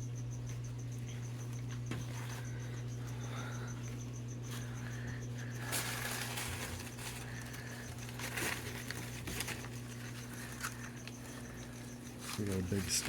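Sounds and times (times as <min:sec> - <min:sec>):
low electrical hum: 0:00.0 - 0:13.0
plastic bags rustling and crinkling: 0:05.6 - 0:11.4, 0:12.1 - 0:13.0.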